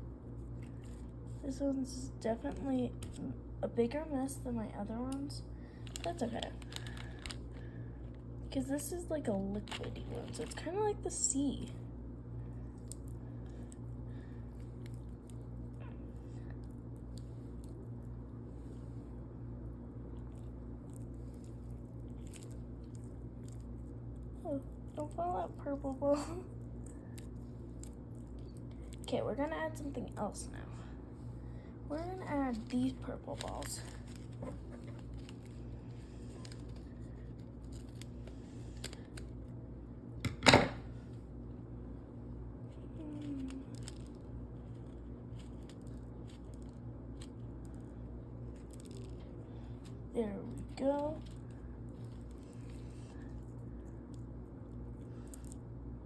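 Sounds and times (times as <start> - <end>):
steady low hum: 0.0 - 56.0
little clicks and crackles: 5.1 - 8.3, 9.5 - 10.7, 12.6 - 13.8, 20.1 - 30.1, 32.5 - 39.5, 42.7 - 55.7.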